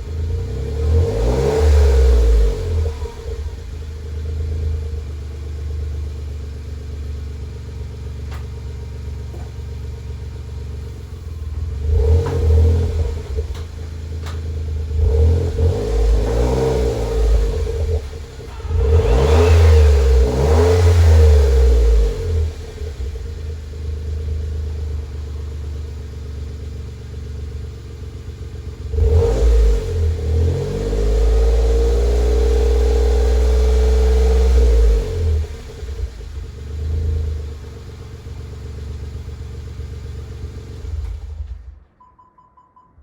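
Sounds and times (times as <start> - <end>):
car engine idling and revving: 0.0 - 42.3.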